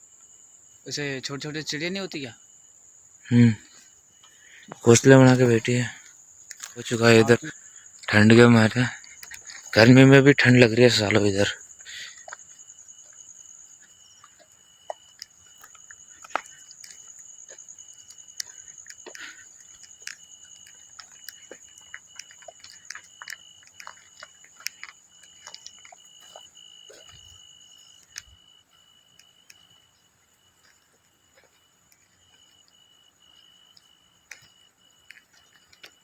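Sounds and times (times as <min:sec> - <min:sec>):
crickets trilling: 0:00.0 - 0:36.0
dry crackles and snaps: 0:06.4 - 0:07.4, 0:08.0 - 0:12.5, 0:14.2 - 0:27.2.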